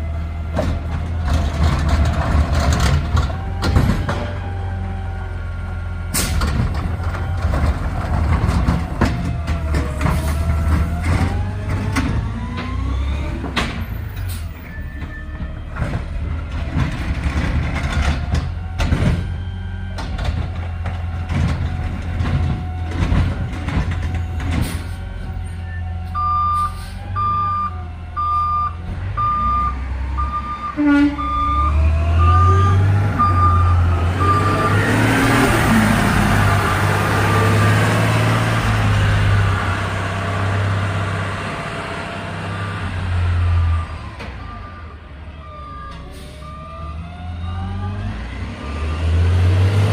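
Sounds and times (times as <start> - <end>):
garbage truck diesel engine: 0.0 - 49.9
backup alarm beeping: 25.6 - 35.0.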